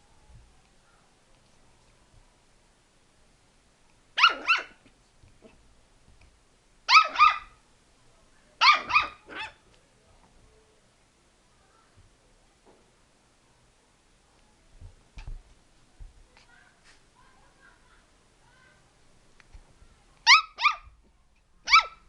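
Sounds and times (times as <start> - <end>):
dog barking: 4.2 - 4.8, 6.9 - 7.6, 8.6 - 9.6, 20.3 - 20.9, 21.7 - 22.0.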